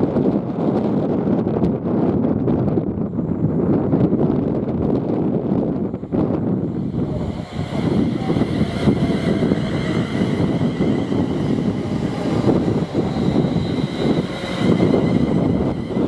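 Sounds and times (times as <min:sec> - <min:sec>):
train passing at speed: 0:00.0 - 0:16.0
faint high whining tones: 0:06.1 - 0:16.0.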